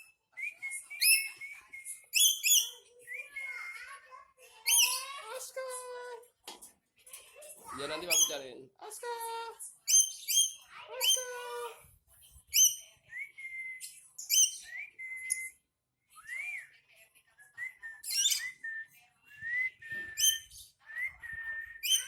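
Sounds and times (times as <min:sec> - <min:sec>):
bird whistles: 0:00.6 - 0:03.8, 0:18.0 - 0:18.6, 0:19.4 - 0:22.0.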